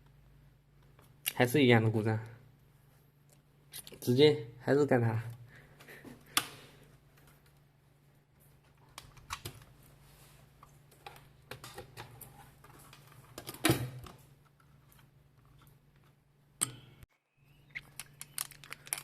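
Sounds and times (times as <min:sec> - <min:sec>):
low electrical hum: 0:00.0 - 0:19.0
tools clicking and tapping: 0:16.6 - 0:17.0.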